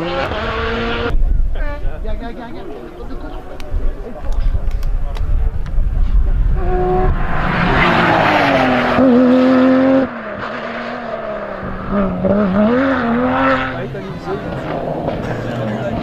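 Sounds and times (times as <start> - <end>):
rally car engine at full throttle: 0.0 - 1.2, 5.3 - 16.0.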